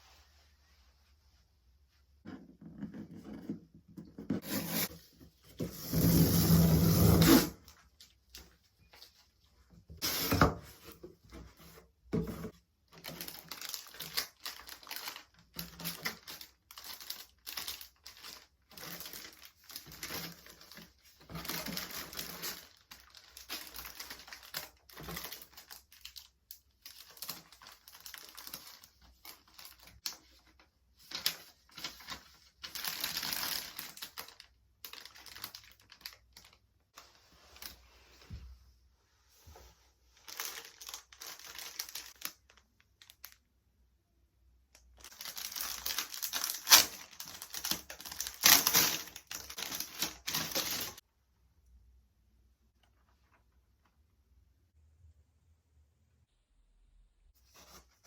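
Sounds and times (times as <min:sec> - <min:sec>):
plastic packaging crinkling: 0:12.9 - 0:37.7, 0:40.2 - 0:43.5, 0:44.8 - 0:51.0.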